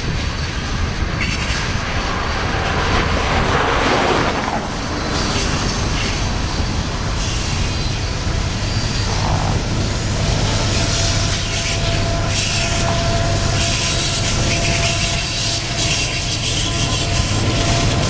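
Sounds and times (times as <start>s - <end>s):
steel wheels rumbling on rail: 0.0s - 18.0s
thin wheel squeal: 10.8s - 18.0s.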